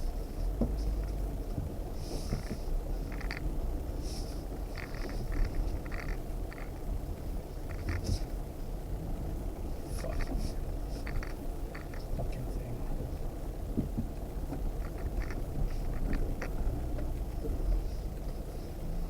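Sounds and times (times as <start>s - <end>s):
engine and tyre rumble: 0.0s - 19.0s
clicks and creaks: 2.1s - 3.5s, 4.5s - 7.0s, 7.6s - 8.4s, 9.9s - 12.3s, 13.8s - 17.6s.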